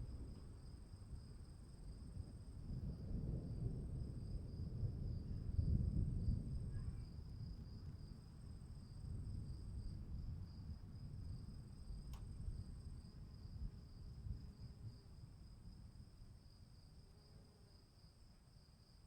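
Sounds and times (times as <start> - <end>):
faint click: 12.1 - 12.3.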